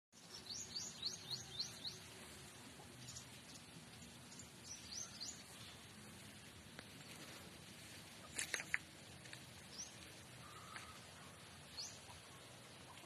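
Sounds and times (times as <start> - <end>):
faint outdoor background noise: 0.1 - 13.0
bird chirping: 0.2 - 7.3, 9.6 - 13.0.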